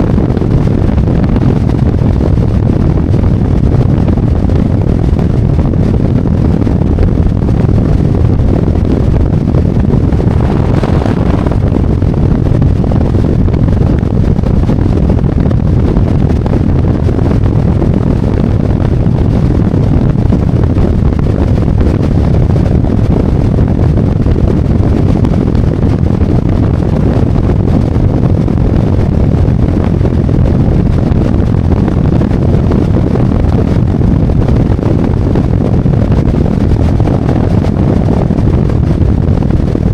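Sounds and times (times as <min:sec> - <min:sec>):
wind and road noise: 0:00.0 - 0:39.9
motorcycle engine rumble: 0:09.0 - 0:14.1.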